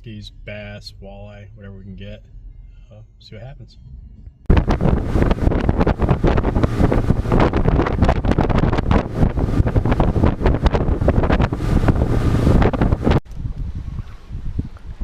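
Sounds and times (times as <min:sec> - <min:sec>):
wind buffeting microphone: 0:04.5 - 0:15.0.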